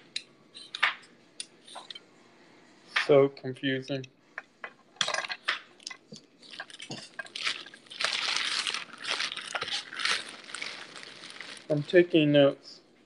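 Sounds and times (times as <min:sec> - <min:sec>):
crunchy rustling handling: 0:06.1 - 0:12.3.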